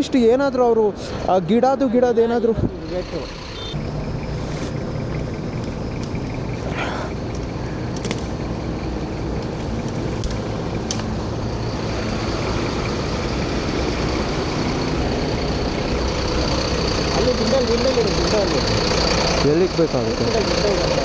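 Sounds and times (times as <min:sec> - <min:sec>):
vehicle engine idling: 0:00.2 - 0:21.0.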